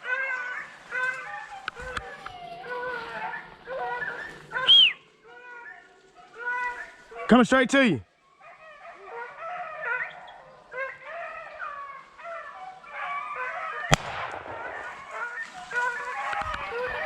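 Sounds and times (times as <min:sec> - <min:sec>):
dogs baying: 0:00.0 - 0:04.9, 0:08.4 - 0:17.0
gunshot: 0:13.9 - 0:15.2.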